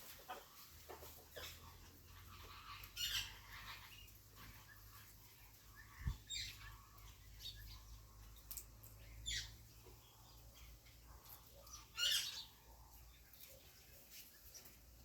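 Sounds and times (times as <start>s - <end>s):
parrot chirps and calls: 1.4s - 5.0s, 5.8s - 9.7s, 10.6s - 13.6s.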